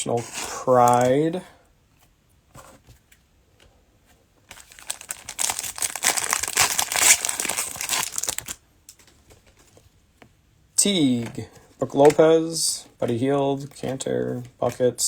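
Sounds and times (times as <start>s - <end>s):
cellophane wrapper crinkling: 0.8s - 1.1s, 4.5s - 8.6s.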